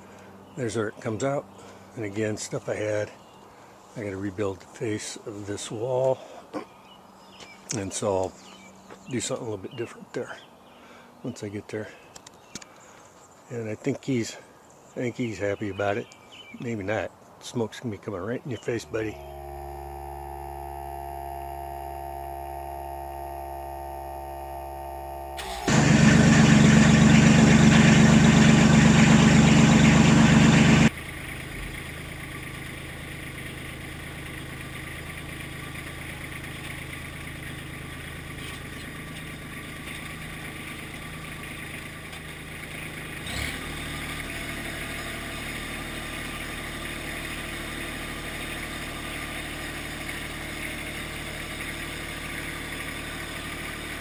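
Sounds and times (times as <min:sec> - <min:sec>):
diesel engine cranking and idling: 0:18.6 - 0:54.0
extractor blower hum: 0:18.6 - 0:54.0.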